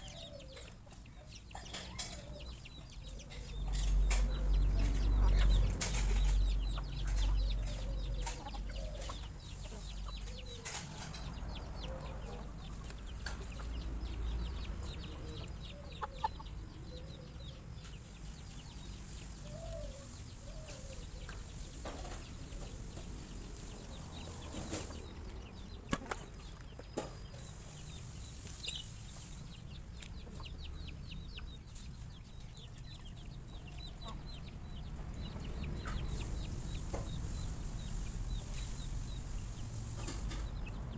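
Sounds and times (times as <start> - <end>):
chickens pecking: 0.0 - 40.9.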